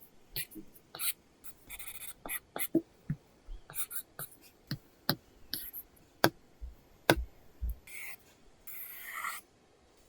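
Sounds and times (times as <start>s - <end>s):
stylus tapping on tablet screen: 2.6s - 7.9s.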